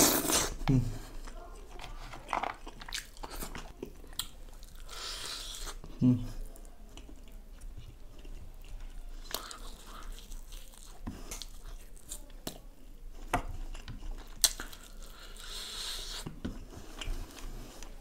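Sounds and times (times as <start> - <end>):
man chewing and biting: 7.0 - 12.2, 13.1 - 17.9.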